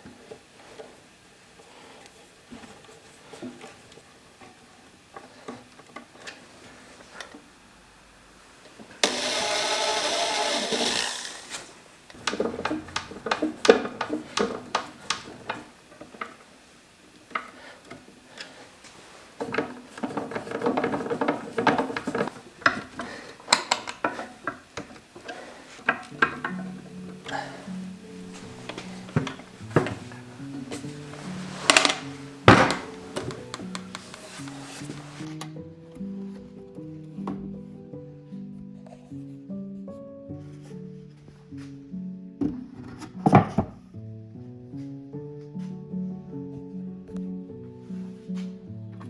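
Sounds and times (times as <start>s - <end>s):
small power tool motor running: 9.0s - 12.4s
handling clicks and knocks: 9.0s - 35.5s.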